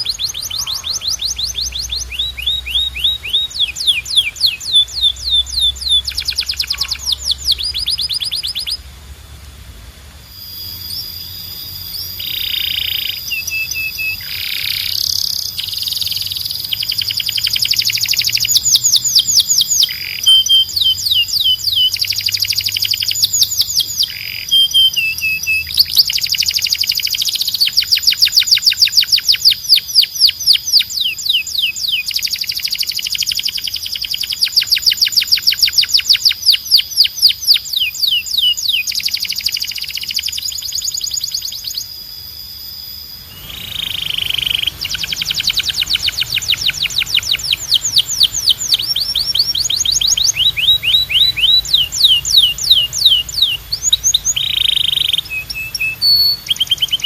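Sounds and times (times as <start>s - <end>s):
canary singing trills: 0.0s - 8.9s, 10.2s - 57.0s.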